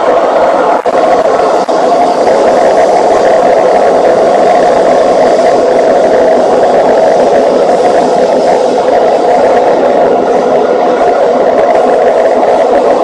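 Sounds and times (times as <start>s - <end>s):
train running roar: 0.0s - 13.0s.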